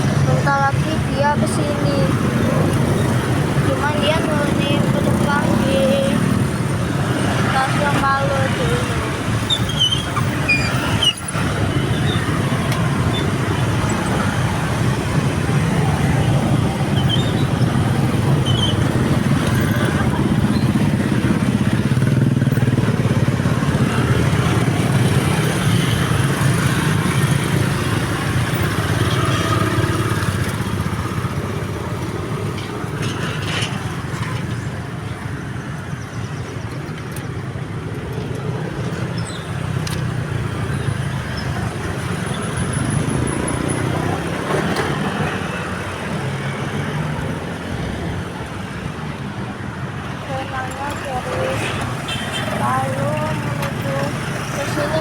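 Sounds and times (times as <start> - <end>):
cars and motorcycles driving past: 0.0 - 55.0.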